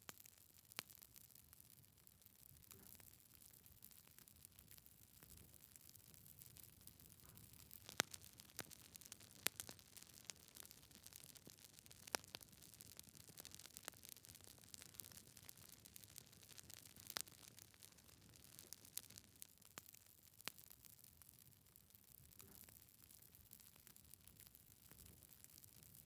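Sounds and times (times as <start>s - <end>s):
wood fire crackling: 0.0s - 26.0s
logs popping: 7.5s - 19.2s.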